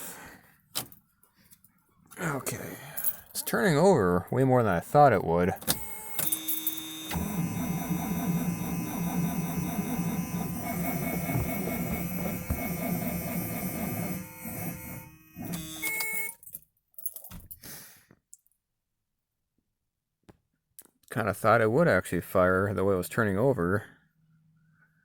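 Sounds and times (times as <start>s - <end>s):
car engine cranking on starter: 5.7s - 15.9s.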